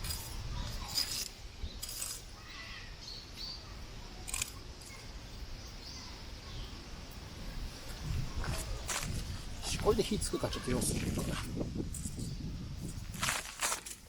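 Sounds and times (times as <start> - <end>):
wind buffeting microphone: 6.7 - 13.6.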